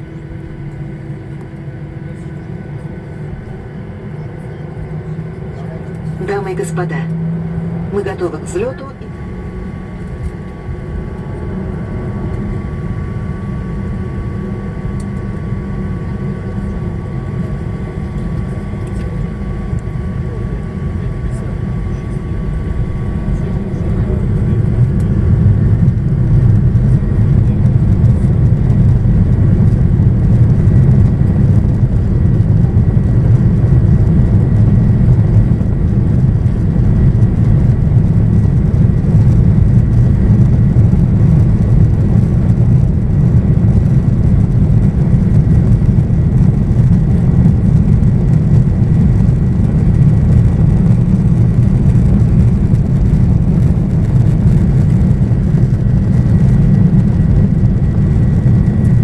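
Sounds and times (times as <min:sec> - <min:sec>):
jet engines in cabin: 0:00.0 - 0:59.0.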